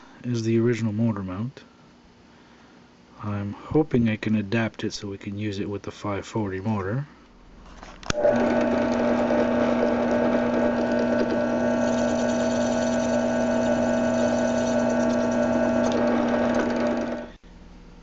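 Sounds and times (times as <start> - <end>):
small power tool whirring: 8.1 - 17.4.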